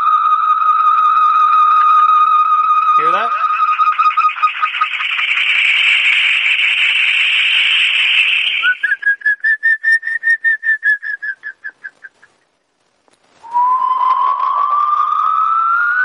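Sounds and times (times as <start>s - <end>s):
shrill feedback screech: 0.0s - 9.3s, 13.4s - 16.0s
pulsing whistle tone: 0.0s - 12.2s, 13.4s - 16.0s.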